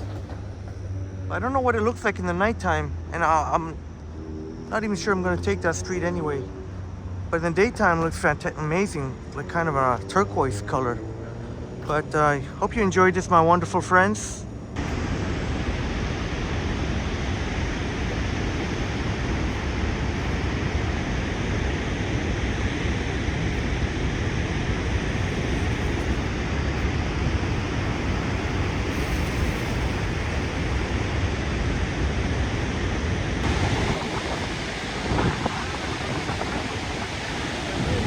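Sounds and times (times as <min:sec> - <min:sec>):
waterfall roaring: 0:14.8 - 0:38.0.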